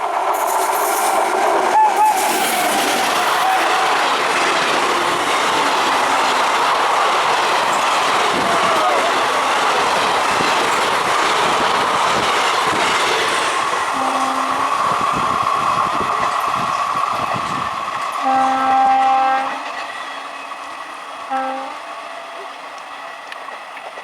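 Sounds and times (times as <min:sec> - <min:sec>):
train wheel and rail noise: 0:00.0 - 0:24.0
locomotive horn blasts: 0:14.0 - 0:14.7, 0:18.2 - 0:19.7, 0:21.3 - 0:21.8.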